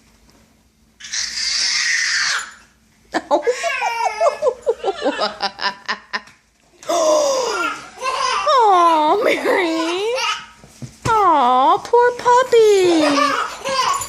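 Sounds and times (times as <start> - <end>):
person laughing: 3.2 - 6.3.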